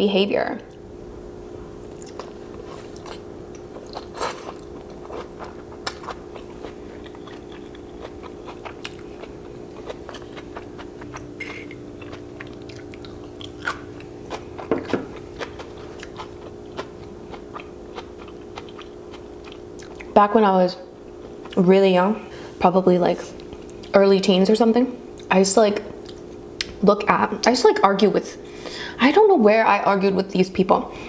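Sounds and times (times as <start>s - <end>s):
steady low hum: 0.0s - 31.0s
person chewing noodles: 1.8s - 20.2s.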